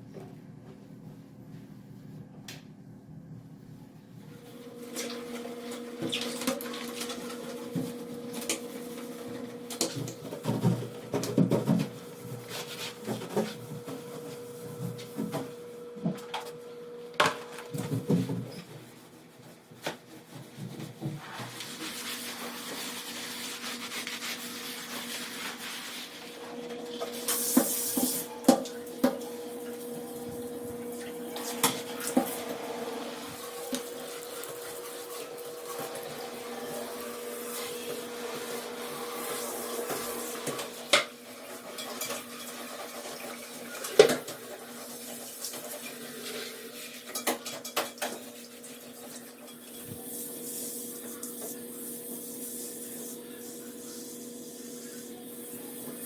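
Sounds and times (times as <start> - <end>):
dishes and cutlery clinking: 40.5 - 42.9, 46.2 - 48.4.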